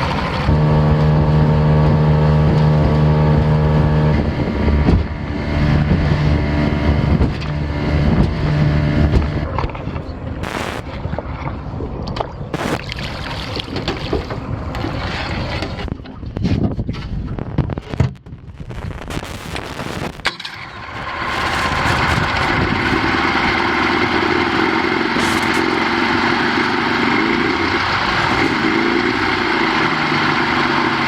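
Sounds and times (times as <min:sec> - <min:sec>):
boat motor running: 0:00.0 - 0:12.8, 0:13.6 - 0:31.0
rushing noise: 0:10.4 - 0:10.9, 0:12.6 - 0:12.8, 0:18.5 - 0:31.0.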